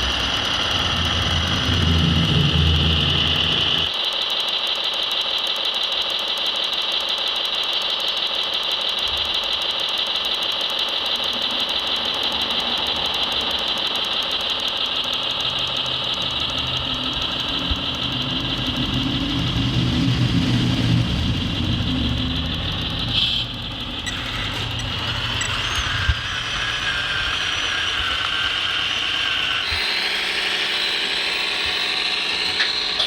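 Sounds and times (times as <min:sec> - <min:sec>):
low rumble: 0:00.0 - 0:03.9, 0:16.8 - 0:27.7
electric pump high whine: 0:00.0 - 0:33.0.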